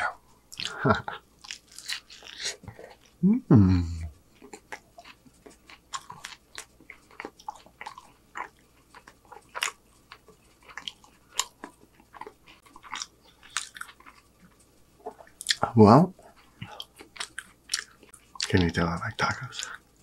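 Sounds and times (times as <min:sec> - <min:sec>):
mouth chewing clicks: 0:03.9 - 0:15.7.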